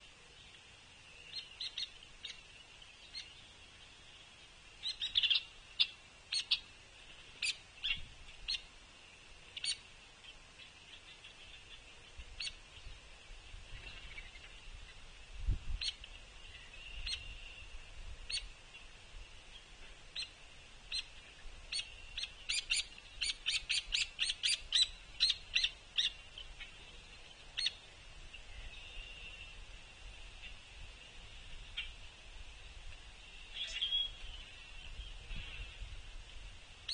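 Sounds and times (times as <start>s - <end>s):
woodpecker call notes: 1.1s - 3.5s, 4.8s - 8.7s, 9.5s - 9.9s, 10.6s - 12.6s, 15.8s - 18.9s, 20.2s - 27.9s.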